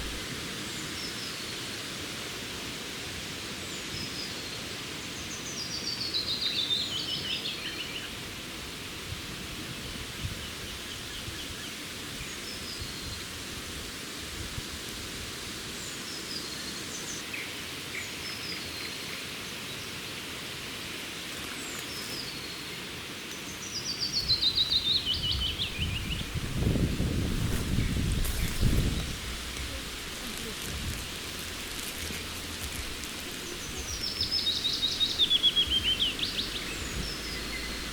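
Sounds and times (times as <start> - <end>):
rustling noise: 0.0 - 0.3, 26.2 - 37.9
background hiss: 0.0 - 37.9
songbirds singing: 21.4 - 37.9.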